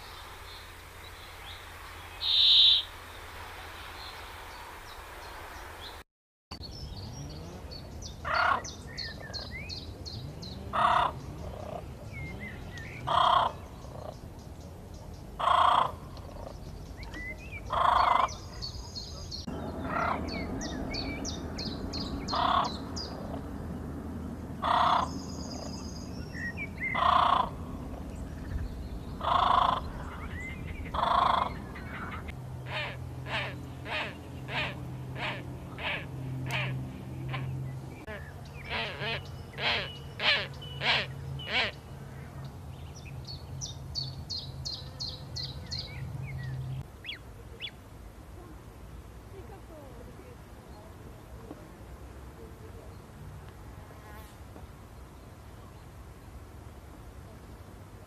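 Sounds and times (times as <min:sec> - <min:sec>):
high bird chirps: 0:00.0 - 0:02.9
bird calls: 0:00.0 - 0:03.2, 0:06.6 - 0:23.6, 0:24.6 - 0:47.8.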